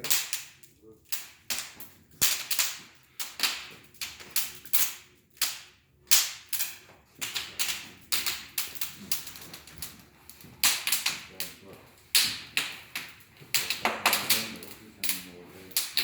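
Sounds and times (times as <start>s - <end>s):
sharp snaps or knocks: 10.6s - 16.0s.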